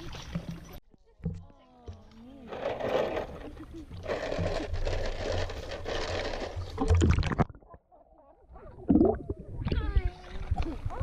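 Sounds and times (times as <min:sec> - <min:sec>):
pool water splashing: 0:00.0 - 0:00.8.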